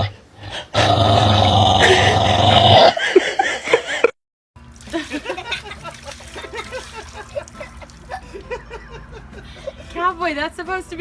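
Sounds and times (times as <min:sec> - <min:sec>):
dog splashing in water: 0:04.6 - 0:08.3.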